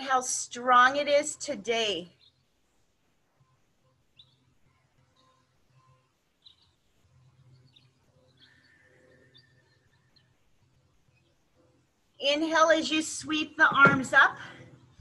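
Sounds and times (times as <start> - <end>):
faint bird chirps: 2.0 - 12.2.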